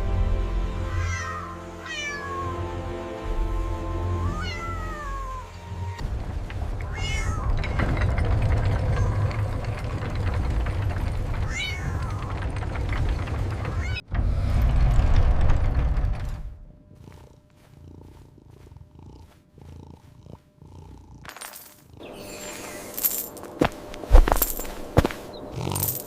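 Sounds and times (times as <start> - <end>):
background music: 0.0 - 6.6
cat meowing: 0.9 - 2.7, 4.2 - 5.7, 6.8 - 7.6, 11.5 - 12.3.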